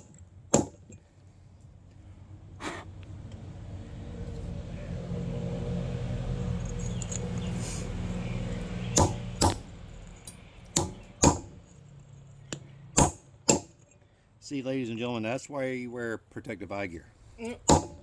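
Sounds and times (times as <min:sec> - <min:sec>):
metal spike striking rock: 0:00.0 - 0:00.9, 0:08.9 - 0:09.7, 0:10.7 - 0:11.6, 0:13.0 - 0:13.8, 0:17.5 - 0:18.0.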